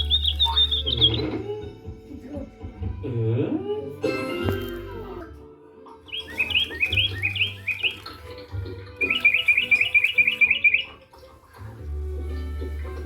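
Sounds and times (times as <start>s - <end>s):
small birds chirping: 0.0s - 2.7s, 5.9s - 13.0s.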